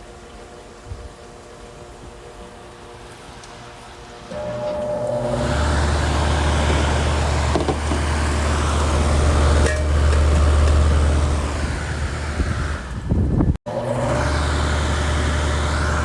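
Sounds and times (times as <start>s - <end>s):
fan whooshing: 2.8s - 16.0s
low compressor hum: 4.0s - 16.0s.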